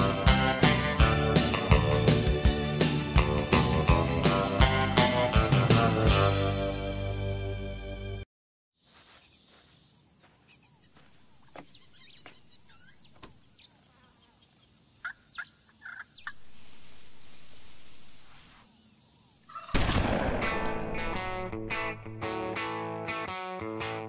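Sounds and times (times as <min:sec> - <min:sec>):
loud guitar rock music: 0:00.0 - 0:07.7, 0:20.4 - 0:24.0
bird chirps: 0:10.3 - 0:18.4.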